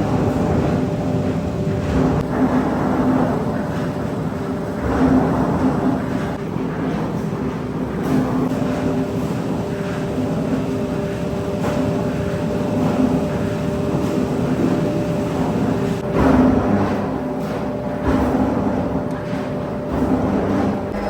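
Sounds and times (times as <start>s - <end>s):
machinery humming tones: 0.0s - 6.3s, 19.8s - 21.0s
factory machinery running: 0.0s - 21.0s.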